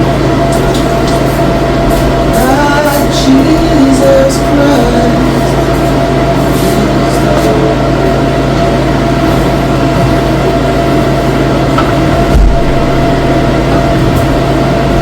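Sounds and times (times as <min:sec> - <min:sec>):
loud mechanical drone: 0:00.0 - 0:15.0
low thump: 0:11.8 - 0:13.4.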